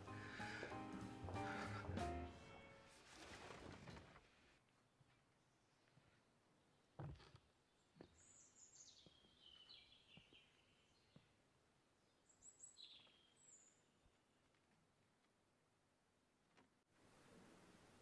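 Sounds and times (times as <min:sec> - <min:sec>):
faint birdsong chirps: 0:05.4 - 0:14.6.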